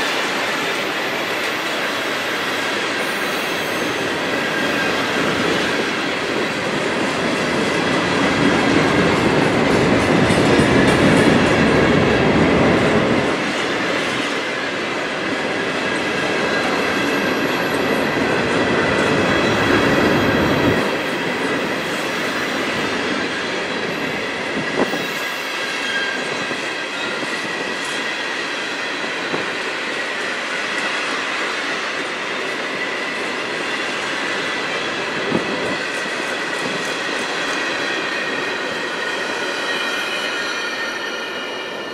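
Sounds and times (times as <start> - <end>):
high-pitched wheel squeal: 24.9 - 27.5.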